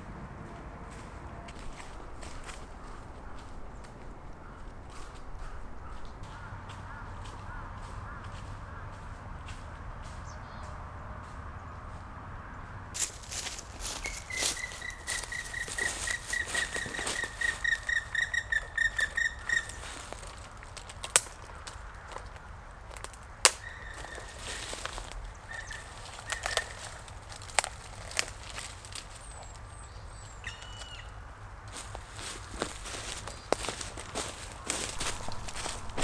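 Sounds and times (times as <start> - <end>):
bird calling clear notes: 13.0 - 22.6, 23.5 - 36.0.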